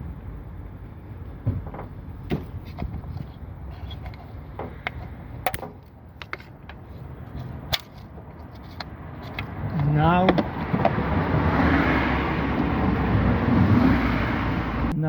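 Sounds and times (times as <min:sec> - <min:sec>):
low steady rumble: 0:00.0 - 0:15.0
hand tools clicking and knocking: 0:01.6 - 0:11.0.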